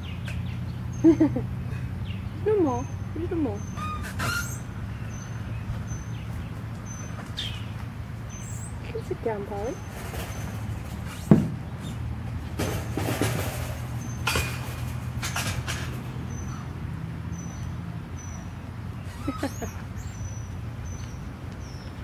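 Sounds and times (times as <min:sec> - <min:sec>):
sharp knock: 0:11.3 - 0:11.6.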